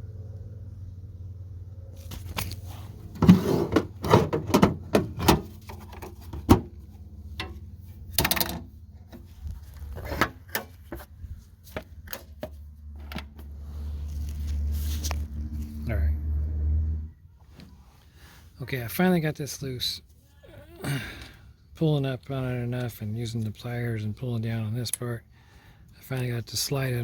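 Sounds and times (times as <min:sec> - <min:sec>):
low hum: 0:00.0 - 0:17.4.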